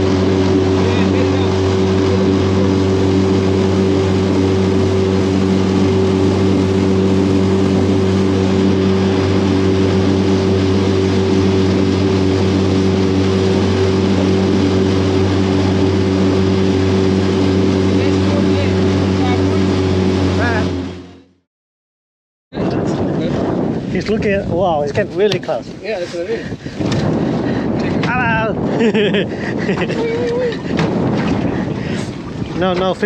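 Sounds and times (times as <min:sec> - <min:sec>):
rushing water noise: 0:00.0 - 0:21.1, 0:29.8 - 0:33.0
outboard motor running: 0:00.0 - 0:21.5, 0:22.5 - 0:33.0.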